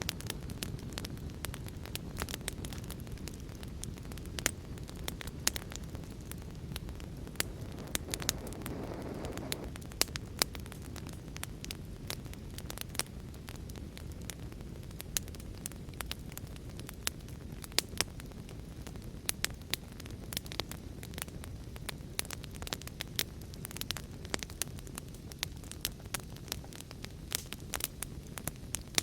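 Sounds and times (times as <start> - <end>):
wood fire crackling and popping: 0.0 - 29.0
rain: 5.4 - 11.0.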